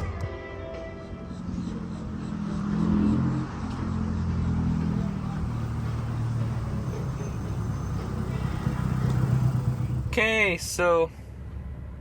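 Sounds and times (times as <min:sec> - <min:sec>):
car engine revving while driving: 0:01.2 - 0:10.1.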